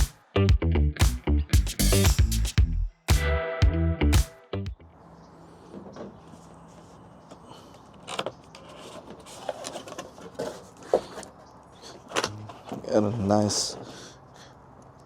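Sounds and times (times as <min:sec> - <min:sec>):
background music: 0:00.0 - 0:04.8
packaging rustling: 0:08.0 - 0:11.4.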